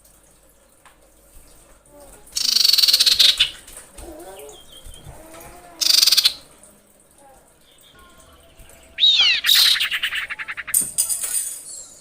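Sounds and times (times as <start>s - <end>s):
bird rattling call: 8.9s - 11.2s.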